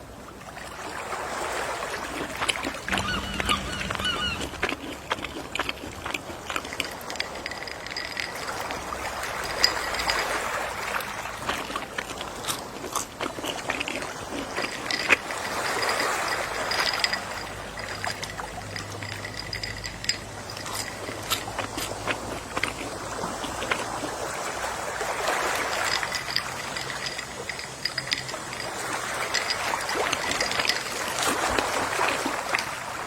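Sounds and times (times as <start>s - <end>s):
sea waves lapping: 0.0s - 33.0s
small clicks and crackles: 11.0s - 24.2s, 25.5s - 33.0s.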